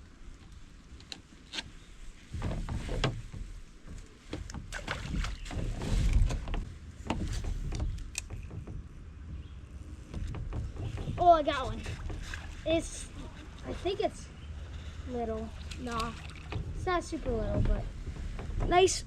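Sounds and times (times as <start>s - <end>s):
fishing gear clicking and knocking: 2.4s - 12.4s
low rumble: 5.8s - 19.0s.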